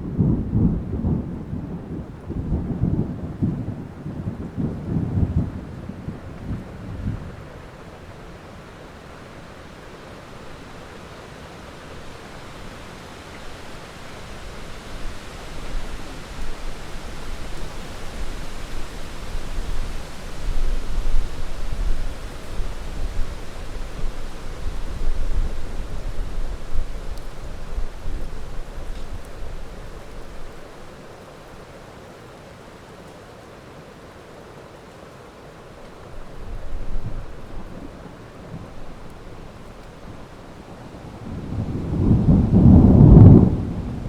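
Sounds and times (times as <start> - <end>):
thunder rumbling: 0.0 - 8.0, 36.4 - 44.0
heavy rain: 0.0 - 44.0.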